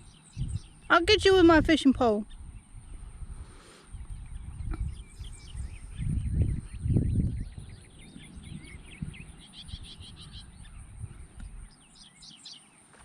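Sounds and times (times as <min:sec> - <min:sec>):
wind buffeting microphone: 0:00.0 - 0:12.3
small birds chirping: 0:00.0 - 0:13.0.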